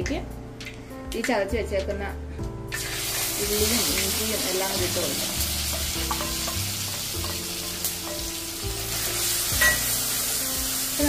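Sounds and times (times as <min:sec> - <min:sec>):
aromatics sizzling in oil: 0:02.7 - 0:11.0.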